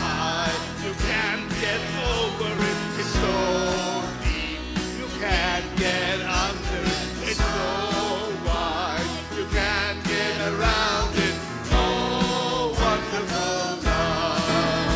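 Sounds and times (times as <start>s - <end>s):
voices singing worship song: 0.0s - 14.9s.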